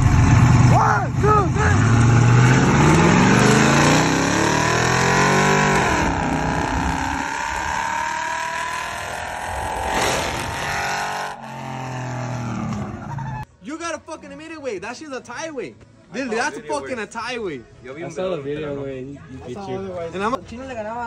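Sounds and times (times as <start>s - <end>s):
engine accelerating hard: 0.0s - 13.3s
wind and road noise: 0.0s - 13.5s.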